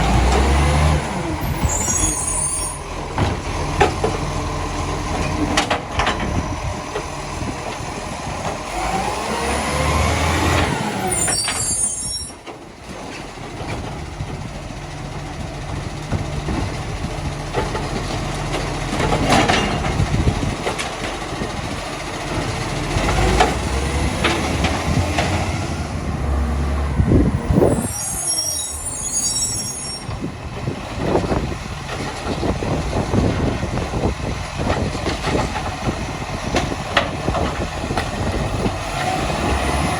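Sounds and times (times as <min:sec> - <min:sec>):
garbage truck diesel engine revving: 0:00.0 - 0:11.8, 0:12.7 - 0:39.9.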